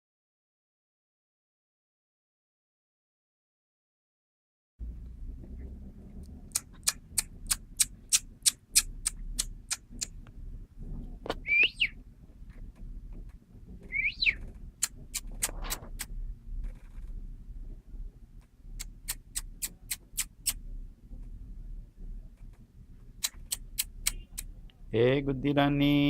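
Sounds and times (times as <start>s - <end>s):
sharp clicks: 6.2s - 10.2s, 14.3s - 17.2s, 18.8s - 20.6s, 23.2s - 24.5s
kitten mewing: 6.5s - 10.2s, 14.8s - 16.1s, 18.8s - 20.6s, 23.2s - 24.5s.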